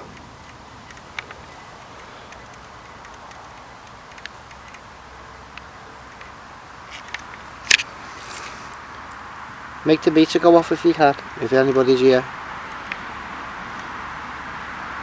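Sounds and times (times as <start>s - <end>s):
small clicks: 0.0s - 9.2s
faint hiss of night air: 0.0s - 15.0s.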